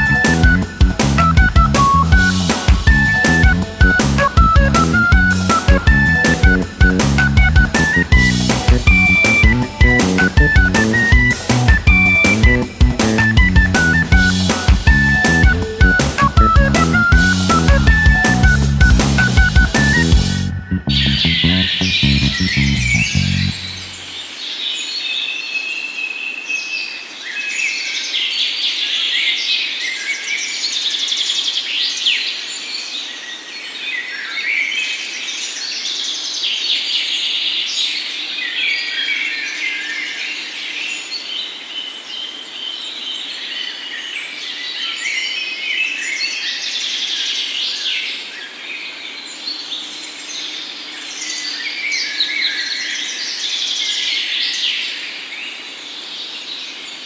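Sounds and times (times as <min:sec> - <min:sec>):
songbirds chirping and trilling: 0:19.9 - 0:57.0.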